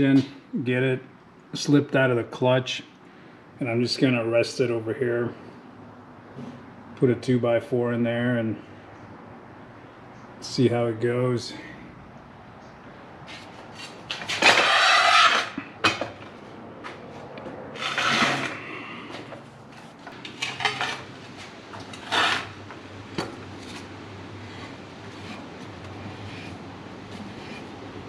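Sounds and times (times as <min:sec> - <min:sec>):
metal clanking and scraping: 0:17.7 - 0:18.6, 0:19.2 - 0:23.9.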